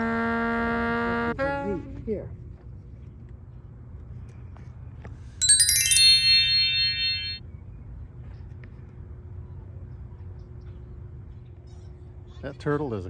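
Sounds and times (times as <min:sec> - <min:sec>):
bell-like chime: 0:05.4 - 0:07.4.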